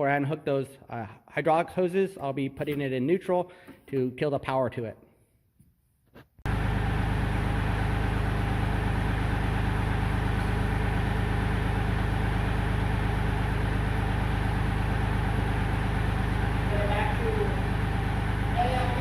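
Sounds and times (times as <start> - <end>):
tractor diesel engine running: 6.5 - 19.0.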